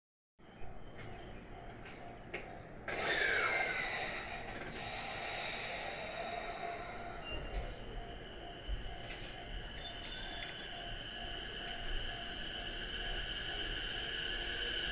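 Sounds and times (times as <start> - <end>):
electric train running: 0.9 - 14.9
motor whine: 2.9 - 14.9
train air hiss: 2.9 - 14.9.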